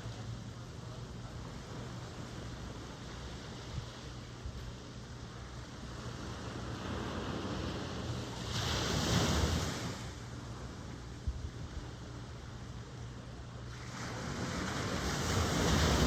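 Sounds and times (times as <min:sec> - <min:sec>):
wind rumble on microphone: 0:00.0 - 0:12.2, 0:13.7 - 0:16.0
ocean wave breaking: 0:06.0 - 0:10.2, 0:13.7 - 0:16.0.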